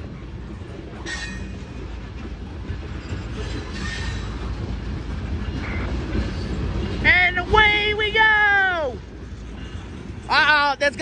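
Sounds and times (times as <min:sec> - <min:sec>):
train wheels rumbling on rails: 0:00.0 - 0:11.0
high-pitched wheel squeals: 0:03.0 - 0:04.5.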